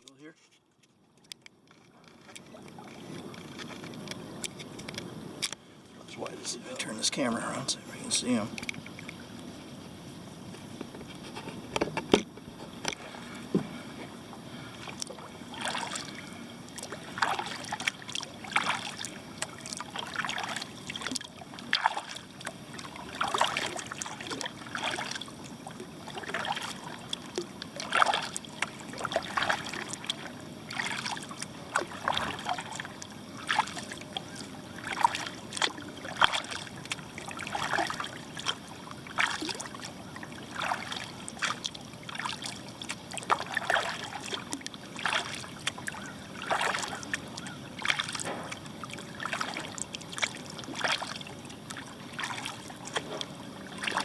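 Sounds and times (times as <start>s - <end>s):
water trickling off paddle: 1.1s - 54.0s
kayak paddle splashing water: 1.7s - 54.0s.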